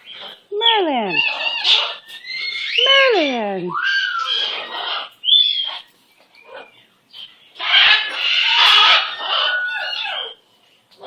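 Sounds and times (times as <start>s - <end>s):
bird squawking: 0.1s - 6.8s, 7.6s - 10.4s.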